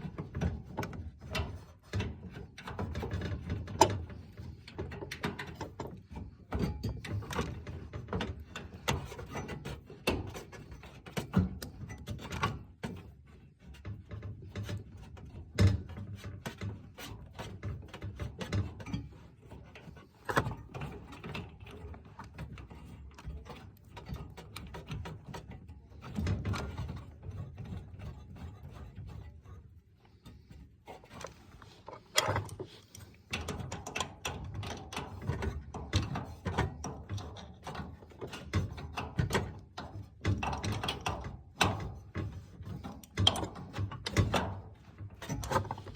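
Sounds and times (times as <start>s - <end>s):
hand tools clicking and scraping metal: 30.2s - 35.5s.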